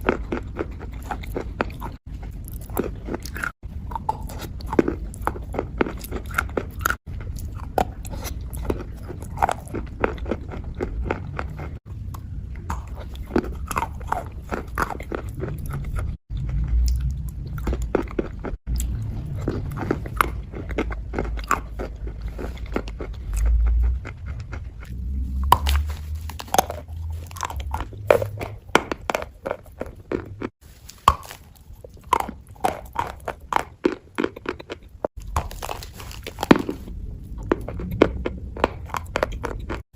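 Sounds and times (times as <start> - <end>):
low rumble: 10.6 - 21.4, 22.0 - 30.4, 35.2 - 39.8
wet crunching crackles: 12.7 - 39.8.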